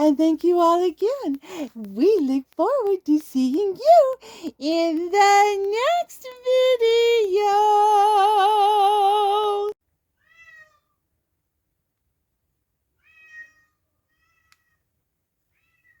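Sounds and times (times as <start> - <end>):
cat meowing faintly: 10.2 - 11.0, 13.0 - 14.8.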